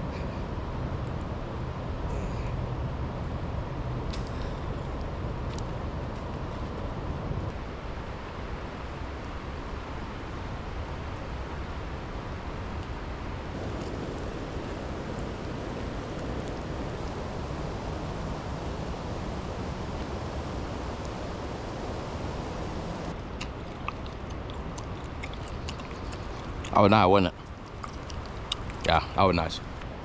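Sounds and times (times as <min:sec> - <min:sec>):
wind rumble on microphone: 0:00.0 - 0:30.0
rain falling: 0:11.0 - 0:30.0.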